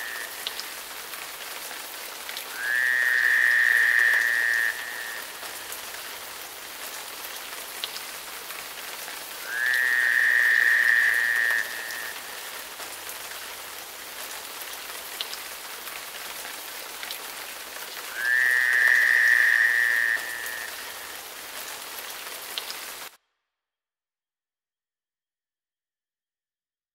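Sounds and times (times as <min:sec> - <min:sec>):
frog calling: 0:00.0 - 0:00.6, 0:02.5 - 0:05.4, 0:09.4 - 0:12.6, 0:18.1 - 0:21.2
steady rain falling: 0:00.0 - 0:23.2.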